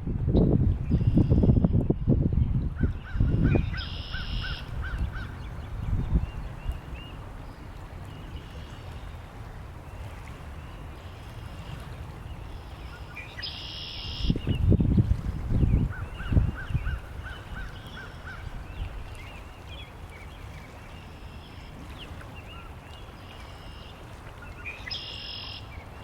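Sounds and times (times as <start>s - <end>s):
wind rumbling on microphone: 0.0s - 24.9s
birds chirping: 3.6s - 8.8s.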